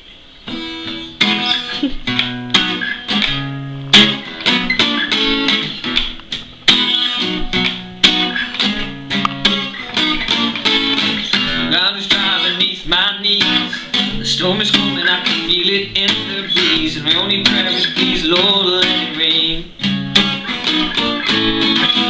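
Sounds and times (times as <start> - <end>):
plucked guitar notes and chords: 0.4 - 22.0.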